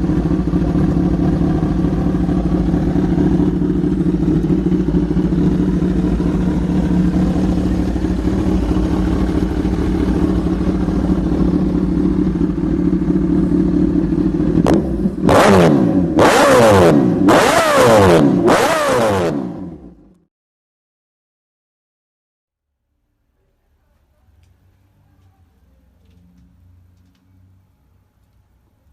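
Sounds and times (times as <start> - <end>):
motorcycle engine idling: 0.0 - 18.6
motorcycle engine revving: 0.0 - 20.1.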